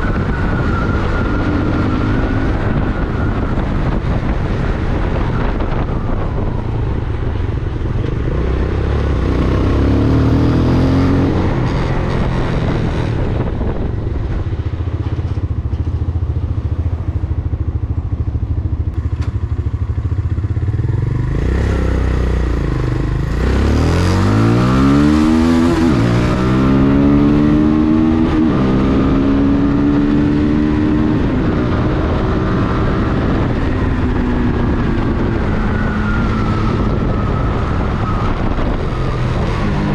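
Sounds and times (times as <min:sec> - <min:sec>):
motorcycle engine running: 0:00.0 - 0:23.7
wind rushing over microphone: 0:00.0 - 0:39.9.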